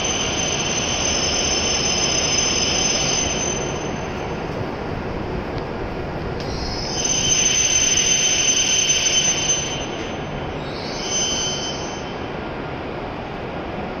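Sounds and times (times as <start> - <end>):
high-pitched brake squeal: 0.0 - 4.2, 6.5 - 12.3
train braking and rumbling: 0.0 - 14.0.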